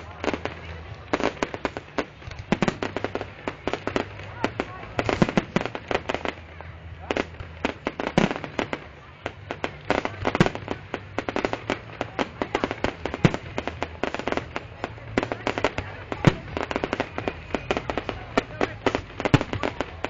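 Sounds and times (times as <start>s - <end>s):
fireworks cracking and popping: 0.0s - 20.0s
loud firework bangs: 0.0s - 20.0s.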